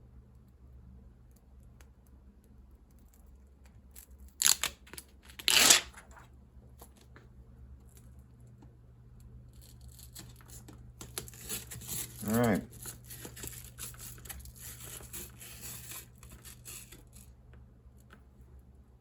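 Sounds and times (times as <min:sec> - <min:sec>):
hook-and-loop tape ripping: 0:04.3 - 0:06.2
hook-and-loop tape crinkling: 0:09.5 - 0:18.2.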